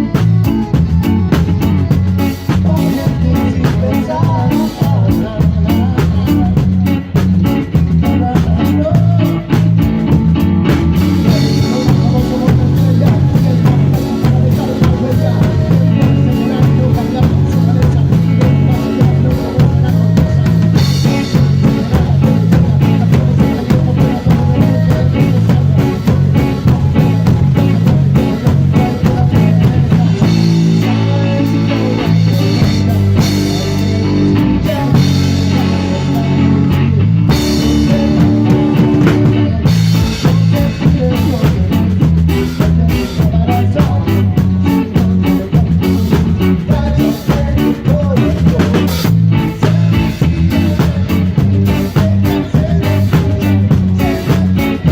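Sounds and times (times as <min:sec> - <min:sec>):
bass guitar: 0:00.0 - 0:54.9
drum kit: 0:00.0 - 0:54.9
electric guitar: 0:00.0 - 0:54.9
live band playing: 0:00.0 - 0:54.9.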